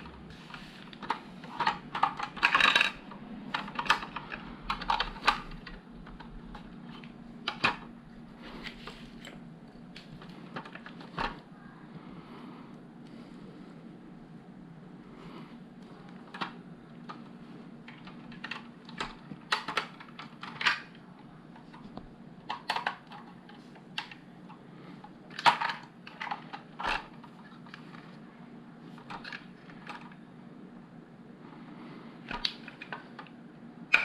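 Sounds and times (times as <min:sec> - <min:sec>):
faint steady hum: 0:00.0 - 0:34.0
plastic bricks clicking and rattling: 0:00.9 - 0:07.9, 0:25.3 - 0:28.0.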